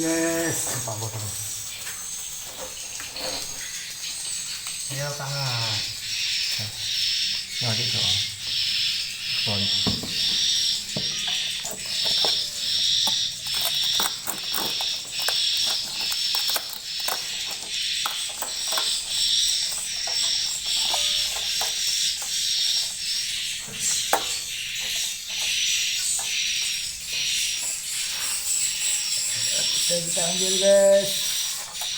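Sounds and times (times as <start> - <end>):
swiftlets chirping: 1.0 - 31.9
sharp clicks and knocks: 9.8 - 27.8.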